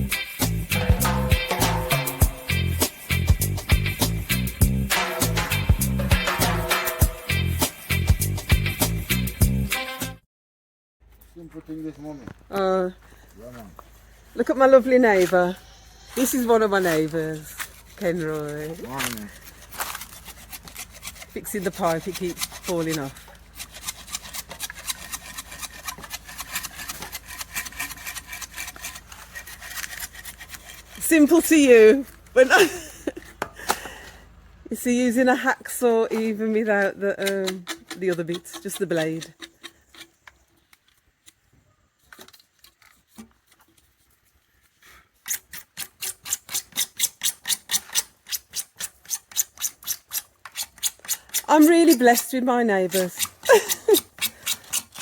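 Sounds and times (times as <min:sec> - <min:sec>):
hacksaw blade sawing pipe: 0:00.7 - 0:03.6, 0:04.9 - 0:07.8, 0:16.2 - 0:31.8, 0:36.7 - 0:40.2, 0:45.2 - 0:55.0.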